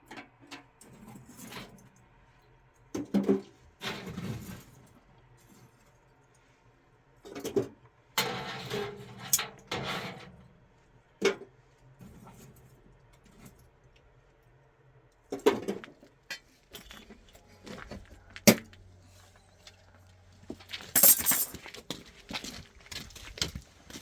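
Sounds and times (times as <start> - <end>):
hard objects clinking and knocking: 20.9 - 21.6.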